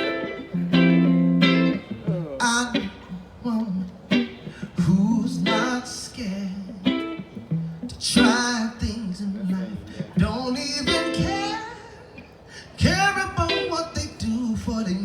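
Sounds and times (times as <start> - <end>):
guitar playing sustained chords: 0.0 - 12.3
person singing wordless vocals: 2.1 - 7.2, 7.8 - 15.0.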